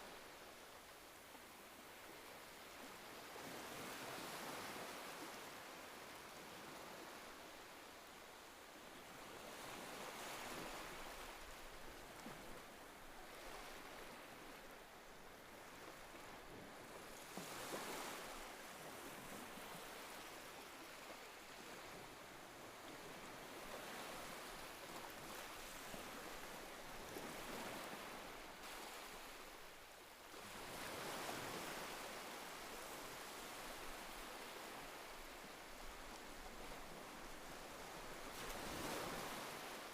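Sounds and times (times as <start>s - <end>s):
ocean surf washing on shore: 9.5s - 39.9s.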